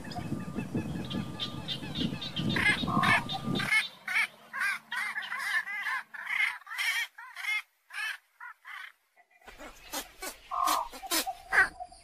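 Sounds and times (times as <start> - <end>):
birds calling rapidly: 0.0 - 12.0.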